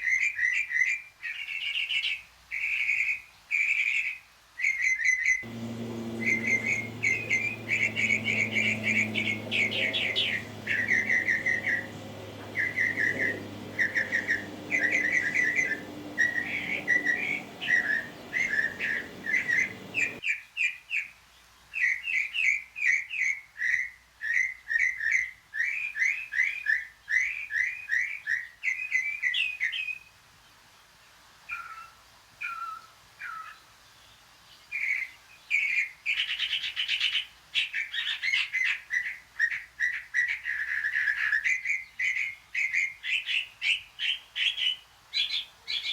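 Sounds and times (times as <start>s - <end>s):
bird calling in whistled notes: 0.0s - 20.4s
low steady hum: 5.4s - 20.2s.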